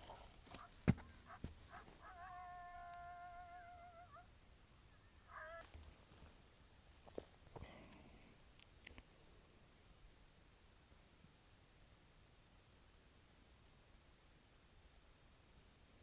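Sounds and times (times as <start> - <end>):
predator call distress cry: 5.2 - 5.7.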